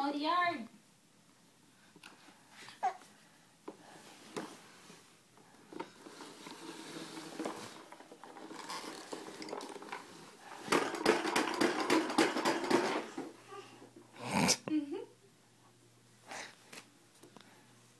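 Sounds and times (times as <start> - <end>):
plastic toy mower rattling and clicking: 5.7 - 13.3.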